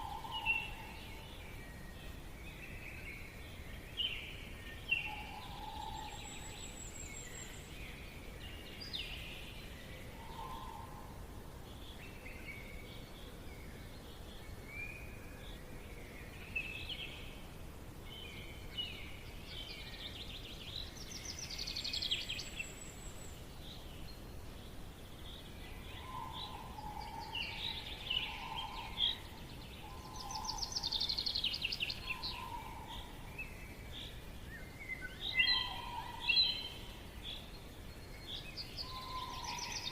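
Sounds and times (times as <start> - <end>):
birds singing and chirping: 0.0 - 17.4, 18.1 - 39.9
faint background hiss: 0.0 - 39.9.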